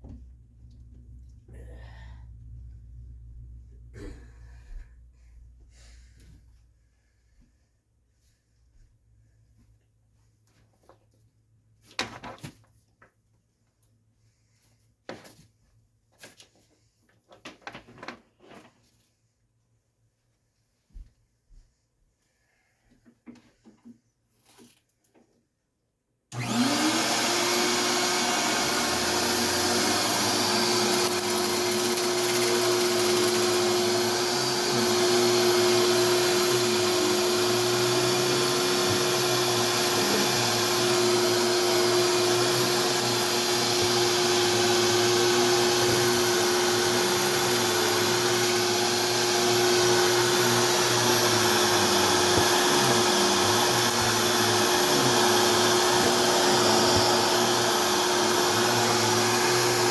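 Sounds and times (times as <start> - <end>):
vacuum cleaner motor whine: 26.3 - 59.9.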